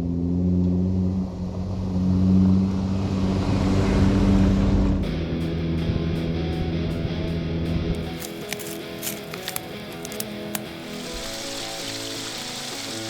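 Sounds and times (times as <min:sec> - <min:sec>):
vehicle engine running: 0:00.0 - 0:08.5
road noise: 0:00.0 - 0:13.0
guitar music: 0:05.0 - 0:13.0.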